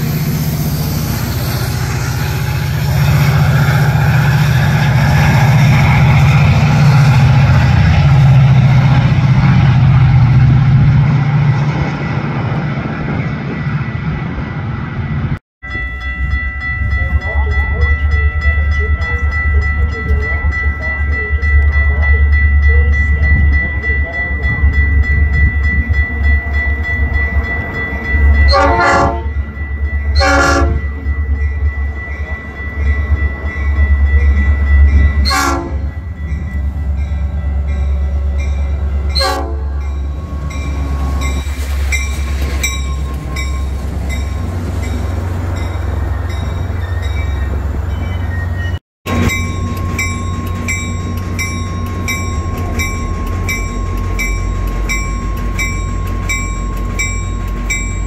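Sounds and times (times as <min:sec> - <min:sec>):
heavy low train rumble: 0:00.0 - 0:58.0
train horn blasts: 0:28.5 - 0:29.4, 0:30.1 - 0:30.9, 0:35.2 - 0:36.0, 0:39.1 - 0:41.1
train wheels clicking: 0:49.1 - 0:58.0.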